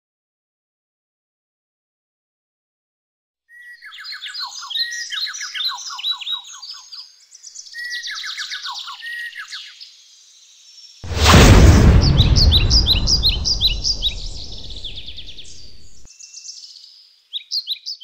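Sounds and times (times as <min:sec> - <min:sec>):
bird song chirps and trills: 0:03.5 - 0:11.0, 0:14.6 - 0:18.0
loud rush of noise: 0:11.1 - 0:16.0.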